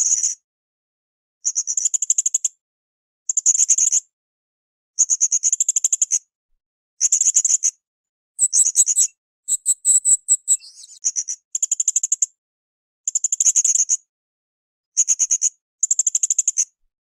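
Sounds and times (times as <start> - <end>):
parrot chirping shrilly: 8.4 - 11.0.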